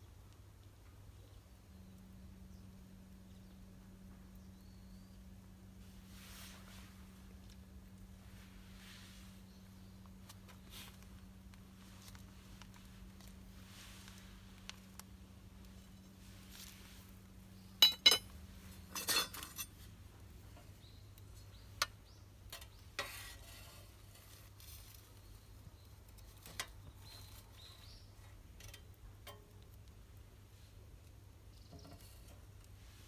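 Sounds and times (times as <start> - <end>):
utensils and cookware clinking: 17.8 - 19.7.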